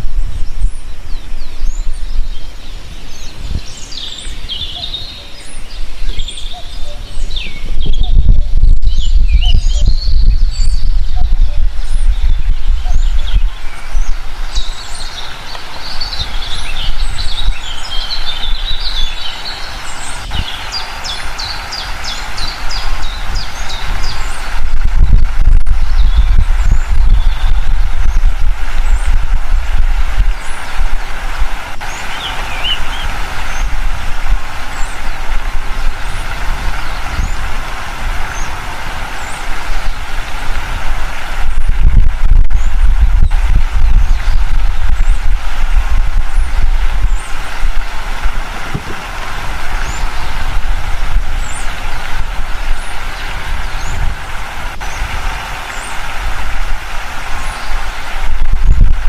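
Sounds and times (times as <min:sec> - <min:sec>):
steady low rumble: 0:00.0 - 0:59.0
wild birds chirping and singing: 0:00.2 - 0:25.1, 0:25.9 - 0:29.2, 0:31.8 - 0:33.8, 0:34.7 - 0:35.2, 0:36.0 - 0:40.4, 0:48.7 - 0:50.6, 0:51.3 - 0:56.1.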